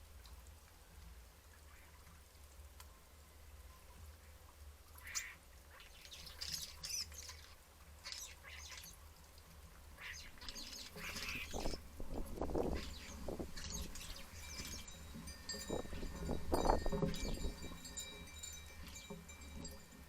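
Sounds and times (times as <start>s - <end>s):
starlings squawking and chirping: 10.0s - 15.0s.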